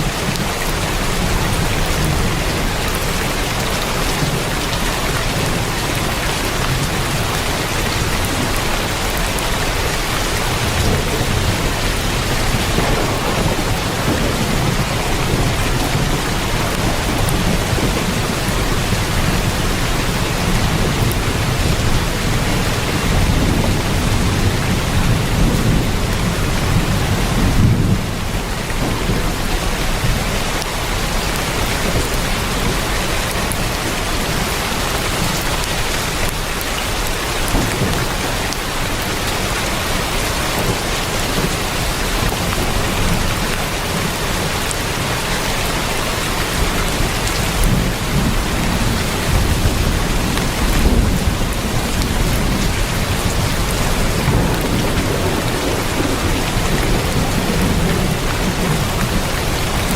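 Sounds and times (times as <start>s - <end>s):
heavy rain on a tin roof: 0.0s - 59.9s
deep low rumble: 12.3s - 18.1s.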